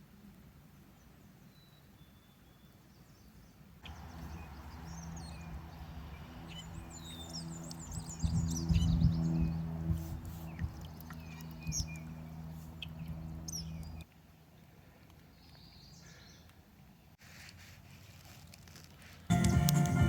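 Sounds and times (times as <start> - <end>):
small birds chirping: 1.0 - 14.1, 15.1 - 17.1
steady low drone: 3.8 - 14.0, 19.3 - 20.0.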